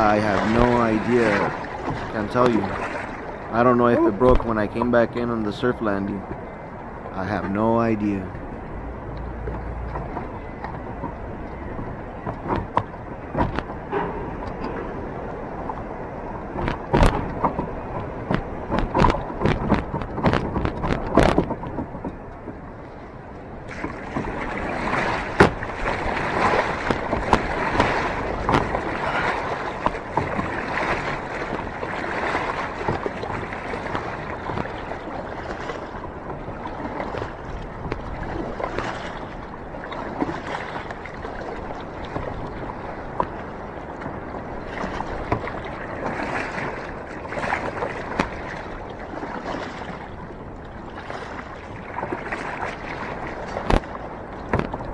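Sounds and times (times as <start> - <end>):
surf washing around kayak: 0.0 - 54.9
wind on microphone: 7.9 - 22.8
sharp knocks: 12.5 - 15.9.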